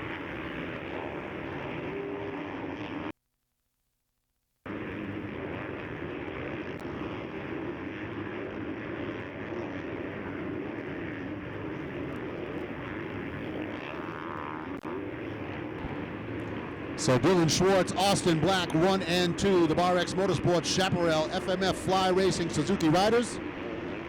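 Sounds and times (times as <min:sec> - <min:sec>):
motocross bike engines revving: 0:04.8 - 0:24.0.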